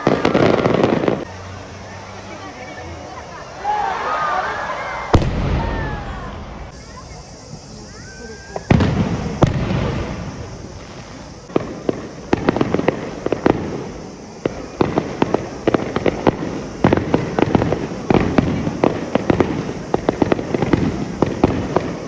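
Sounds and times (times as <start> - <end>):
fireworks crackling pops: 0.0 - 1.9, 3.6 - 22.0
firework boom: 5.0 - 7.1, 8.5 - 21.8.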